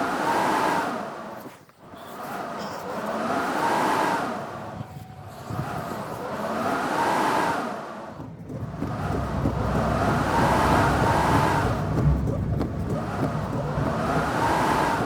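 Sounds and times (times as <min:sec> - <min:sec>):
wind gusting and howling: 0:03.6 - 0:15.0
wind buffeting rumble: 0:04.5 - 0:06.5, 0:08.1 - 0:15.0.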